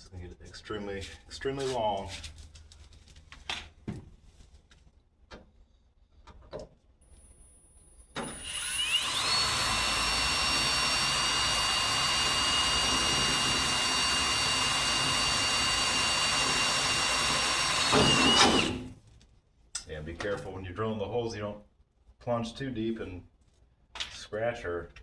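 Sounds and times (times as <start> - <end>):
electric drill whining: 8.2 - 19.0.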